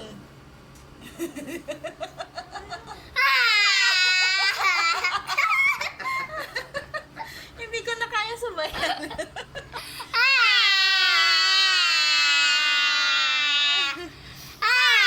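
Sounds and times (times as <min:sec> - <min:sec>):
baby squealing: 0:10.2 - 0:14.0, 0:14.6 - 0:15.0.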